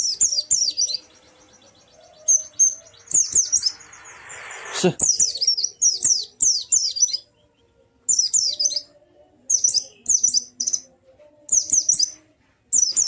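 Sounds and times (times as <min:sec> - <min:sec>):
bird chirping rapid high bursts: 0:00.0 - 0:07.3, 0:08.1 - 0:08.9, 0:09.5 - 0:10.8, 0:11.5 - 0:12.2, 0:12.8 - 0:13.0.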